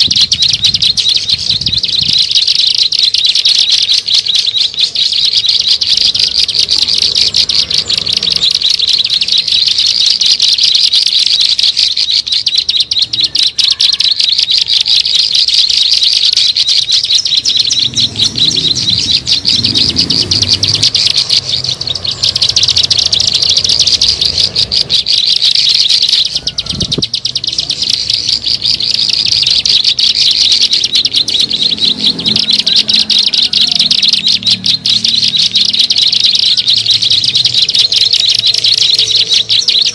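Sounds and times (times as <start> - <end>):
bird call chatter: 0.0 - 39.9.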